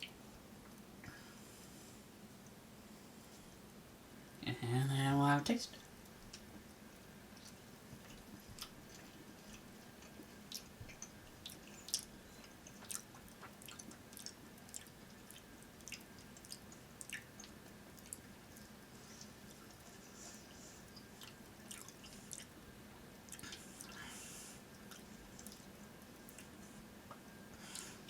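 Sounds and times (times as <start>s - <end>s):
wet chewing clicks and squishes: 7.3s - 20.0s, 21.0s - 22.6s, 23.2s - 24.0s, 24.8s - 27.3s.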